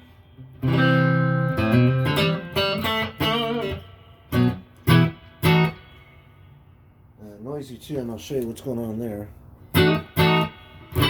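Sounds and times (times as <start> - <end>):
electric guitar with spring reverb: 0.0 - 6.8, 9.6 - 11.0.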